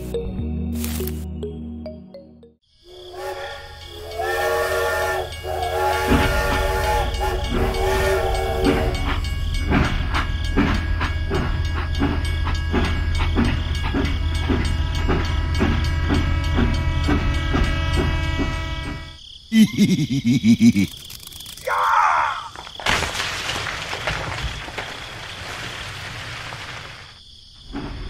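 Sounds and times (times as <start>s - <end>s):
train whistle blasts: 2.9s - 9.3s, 15.3s - 19.2s
train wheels clickety-clack: 3.8s - 19.2s.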